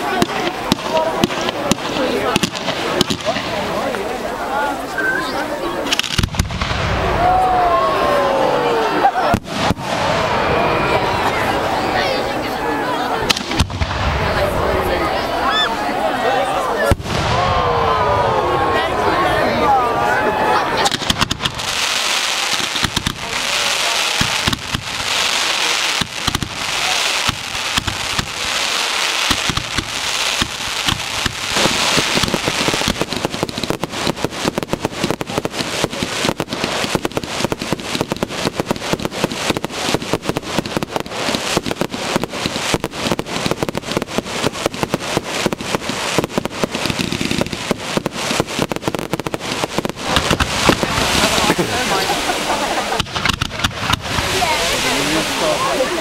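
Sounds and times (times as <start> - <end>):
fireworks crackling: 0.0 - 56.0
fireworks hiss: 20.8 - 56.0.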